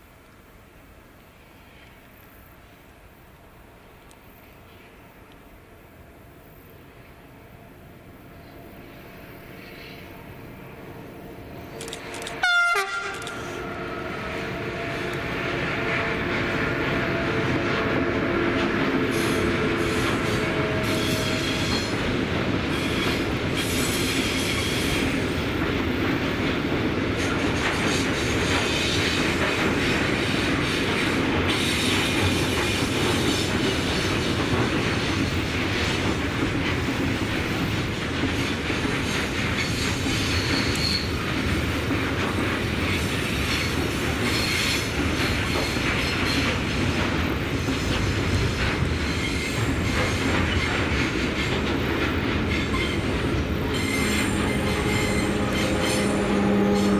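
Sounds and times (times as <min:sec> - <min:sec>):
train wheels clattering on rails: 0:08.5 - 0:56.9
high wheel squeals: 0:19.0 - 0:25.0, 0:52.5 - 0:56.9.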